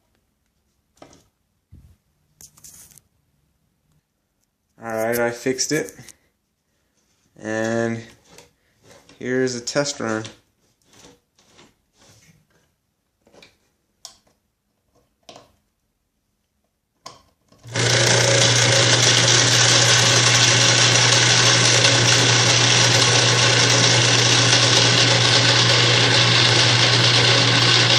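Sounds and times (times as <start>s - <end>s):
electric motor humming: 17.6s - 27.9s.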